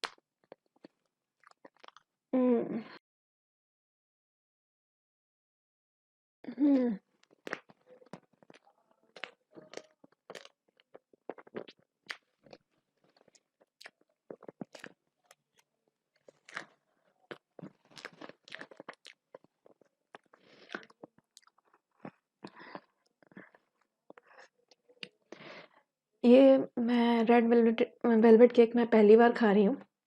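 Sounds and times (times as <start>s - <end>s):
mouth chewing food: 0.0s - 2.1s, 6.7s - 25.4s.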